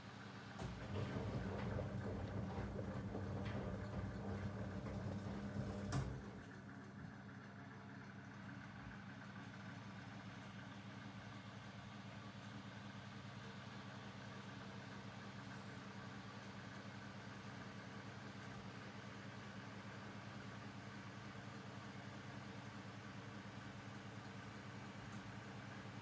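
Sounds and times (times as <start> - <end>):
washing machine motor hum: 0.6 - 6.7.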